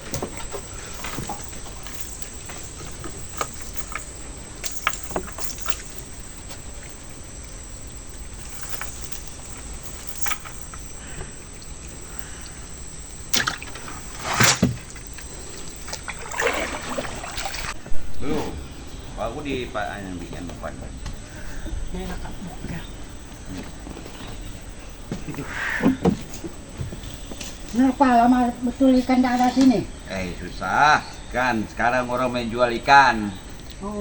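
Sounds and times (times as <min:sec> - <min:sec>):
water trickling and dripping: 0:00.0 - 0:17.9
water splashes: 0:13.2 - 0:17.8.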